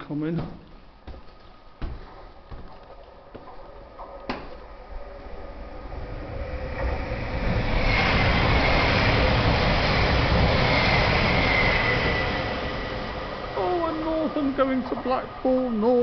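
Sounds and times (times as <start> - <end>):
passenger train rumble: 4.6 - 16.0
train high whine: 4.6 - 16.0.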